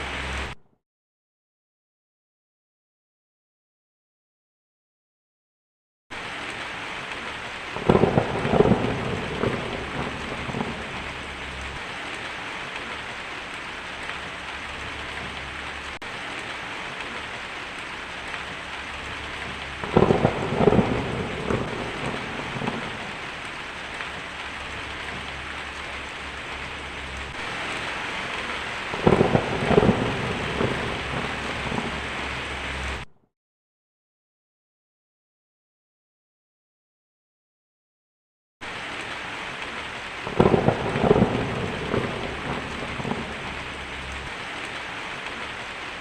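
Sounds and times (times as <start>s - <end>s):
steady rain: 0.0s - 0.6s, 6.1s - 33.1s, 38.6s - 46.0s
thunder rumbling: 6.2s - 33.1s, 38.7s - 46.0s.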